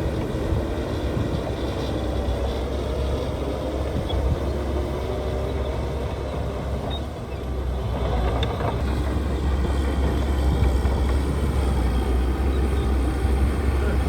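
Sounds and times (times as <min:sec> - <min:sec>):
diesel machinery engine rumble: 0:00.0 - 0:14.0
clatter and grinding: 0:07.8 - 0:12.0.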